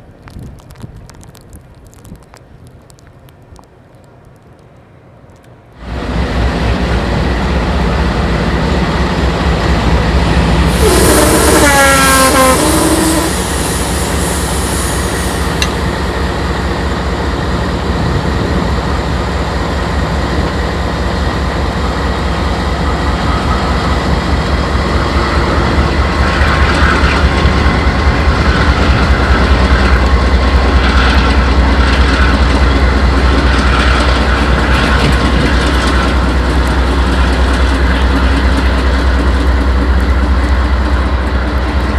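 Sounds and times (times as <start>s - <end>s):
locomotive engine rumble: 0.0s - 41.9s
train cars squeaking and clattering: 9.9s - 16.5s
hiss with sliding squeal: 10.7s - 15.6s.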